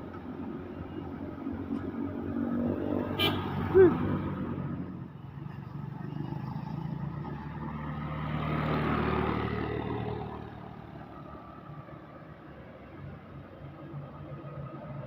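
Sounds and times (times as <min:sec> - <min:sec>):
vehicle engine passing by: 0:05.7 - 0:11.7.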